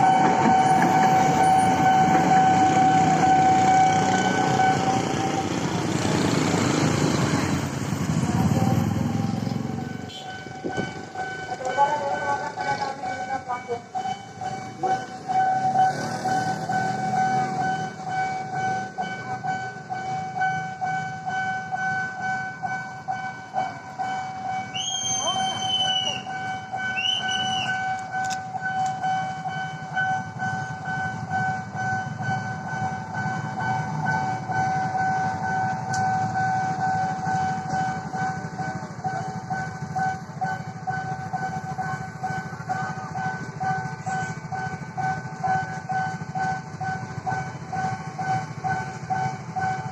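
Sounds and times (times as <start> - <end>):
crossing warning bell ringing: 0.0 - 49.9
train rumbling past: 0.0 - 49.9
train horn blasts: 10.1 - 10.8.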